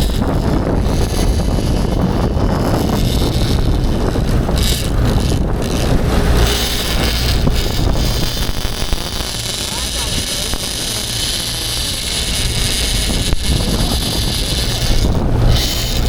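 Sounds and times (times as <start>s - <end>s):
boat motor running: 0.0s - 16.0s
wind buffeting microphone: 0.0s - 16.0s.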